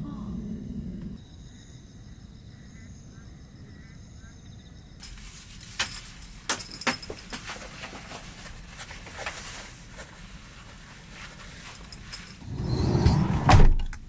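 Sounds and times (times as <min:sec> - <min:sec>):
steady low rumble: 0:00.0 - 0:01.2
small hard objects clinking: 0:05.0 - 0:12.4.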